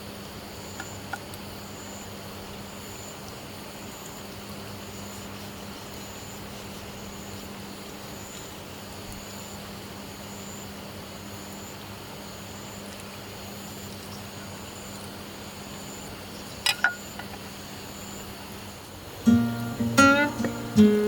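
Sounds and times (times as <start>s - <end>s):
background hiss: 0.0s - 21.0s
acoustic guitar music: 19.2s - 21.0s.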